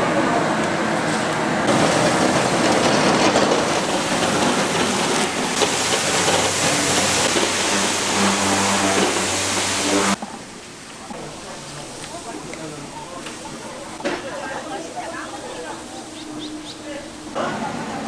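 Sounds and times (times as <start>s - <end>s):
food sizzling: 1.7s - 10.2s.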